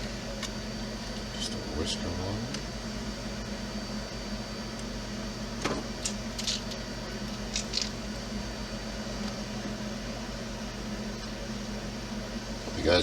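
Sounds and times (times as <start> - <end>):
steady low hum: 0.0 - 13.0
small parts clicking and rattling: 6.0 - 6.8, 7.5 - 8.0.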